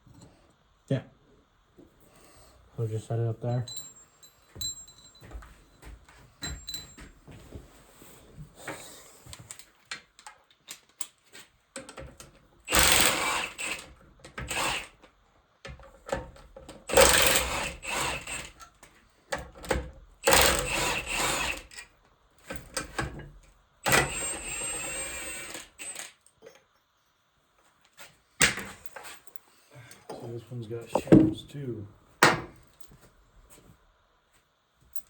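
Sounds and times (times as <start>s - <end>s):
clicks and knocks of parts and tools: 9.3s - 12.4s.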